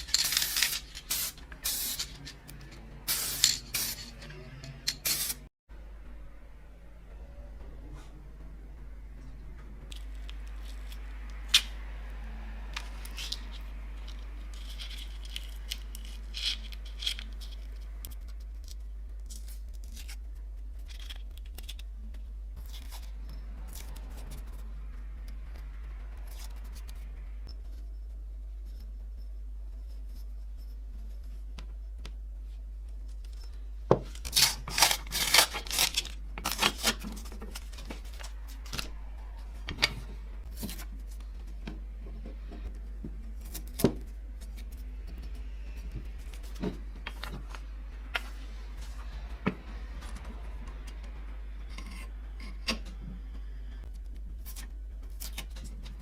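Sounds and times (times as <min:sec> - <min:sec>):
steady low hum: 0:00.0 - 0:56.0
sharp clicks and scrapes: 0:12.7 - 0:27.9.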